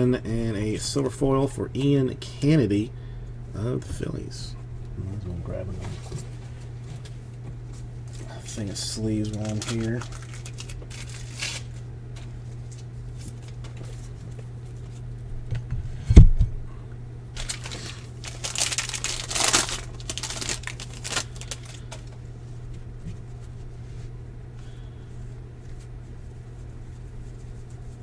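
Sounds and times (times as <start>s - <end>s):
steady low hum: 0.0s - 28.0s
plastic wrapper crinkling: 9.0s - 11.9s, 17.4s - 22.2s.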